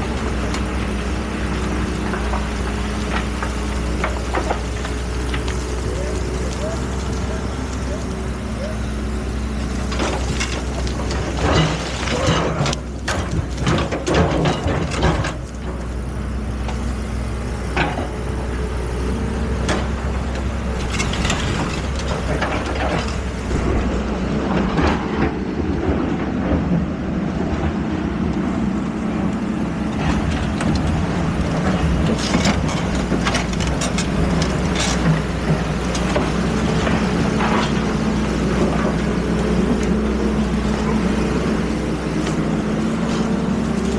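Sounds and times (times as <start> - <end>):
diesel engine running: 0.0 - 43.9
metal clanks and scrapes: 9.9 - 15.8.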